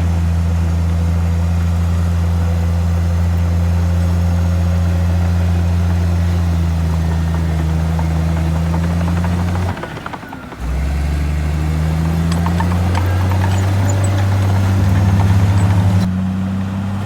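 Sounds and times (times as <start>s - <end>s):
heavy diesel engine running: 0.0s - 17.0s
light metallic clatter: 3.3s - 16.1s.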